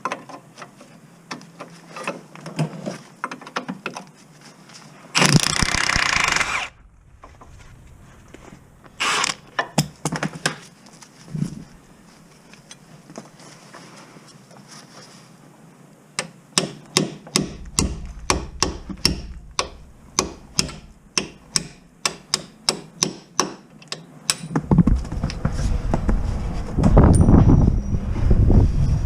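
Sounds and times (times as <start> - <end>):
loud rushing noise: 6.4 - 9.3, 24.6 - 29.0.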